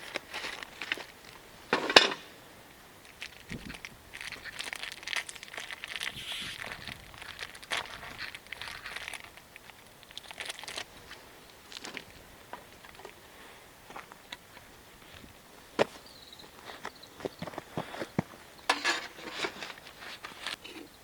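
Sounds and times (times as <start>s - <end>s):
wrapping crumpling rustles: 0.0s - 1.4s, 3.0s - 12.2s.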